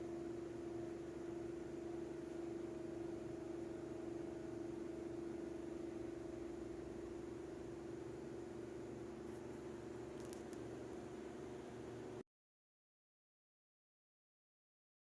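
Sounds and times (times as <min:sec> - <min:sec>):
steady machine hum: 0:00.0 - 0:12.2.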